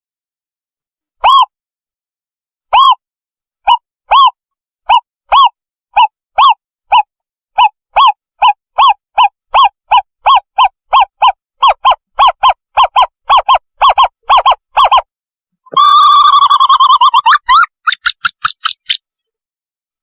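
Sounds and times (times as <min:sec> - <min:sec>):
owlet hoots: 0:15.7 - 0:18.4.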